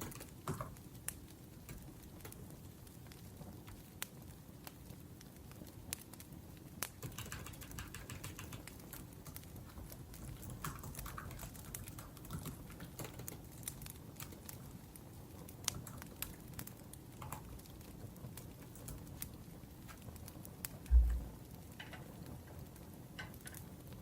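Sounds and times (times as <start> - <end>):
laptop keyboard typing: 0.0 - 0.8, 6.9 - 14.7, 15.6 - 16.4, 17.2 - 17.8
fire popping: 0.0 - 24.0
wood fire crackling: 0.0 - 24.0.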